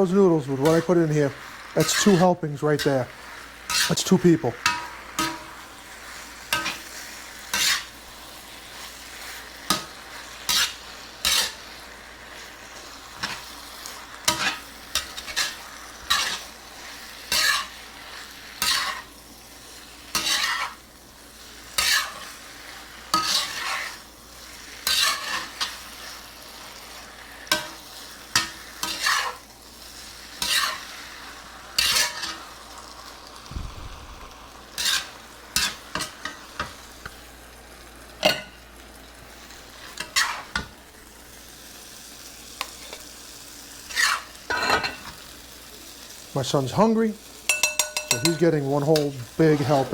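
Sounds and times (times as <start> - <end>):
food sizzling in a pan: 0.0 - 49.9
utensil scraping and clinking: 47.5 - 49.9.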